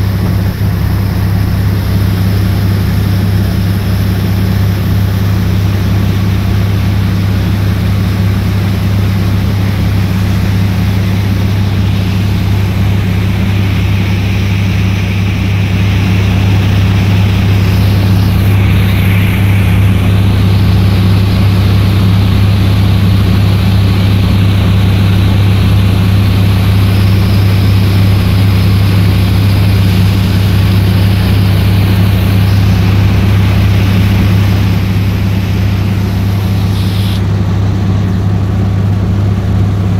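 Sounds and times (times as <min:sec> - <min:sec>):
boat engine running: 0:00.0 - 0:39.9
water rushing: 0:09.6 - 0:22.8, 0:25.4 - 0:37.2.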